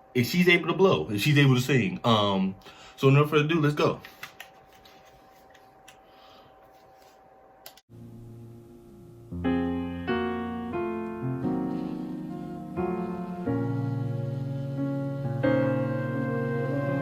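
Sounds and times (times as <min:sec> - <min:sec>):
keyboard piano chords: 0:07.9 - 0:17.0.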